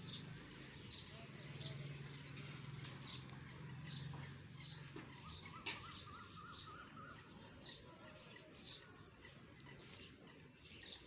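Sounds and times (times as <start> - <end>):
small birds chirping: 0.0 - 11.0
warbled bird call: 5.1 - 7.8.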